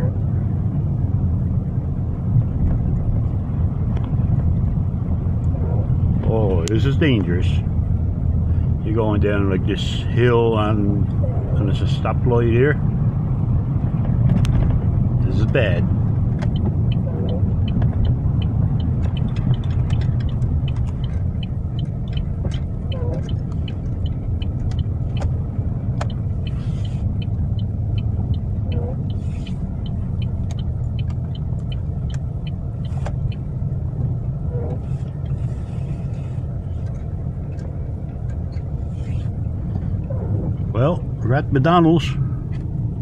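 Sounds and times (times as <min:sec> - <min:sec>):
car engine rumble: 0:00.0 - 0:43.0
tyres on snowy road: 0:00.0 - 0:43.0
faint light ticks: 0:03.9 - 0:04.7, 0:16.3 - 0:40.1.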